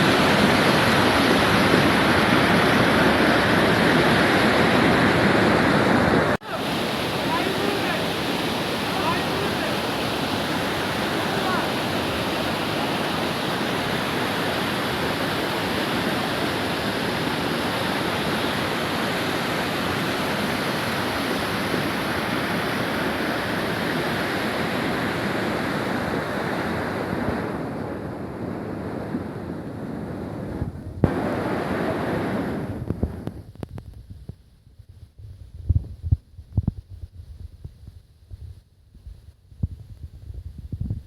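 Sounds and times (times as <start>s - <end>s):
floodwater rushing: 0.0s - 27.6s.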